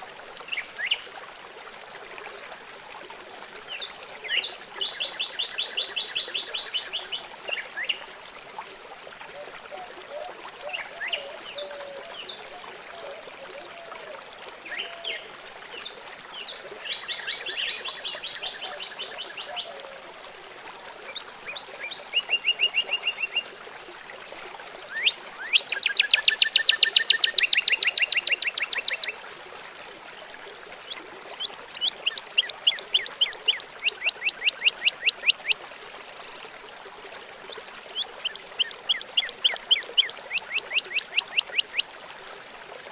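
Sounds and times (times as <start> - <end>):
trickle of running water: 0.0 - 42.9
songbirds trilling and chirping: 24.6 - 30.1, 30.9 - 35.4, 38.0 - 41.8.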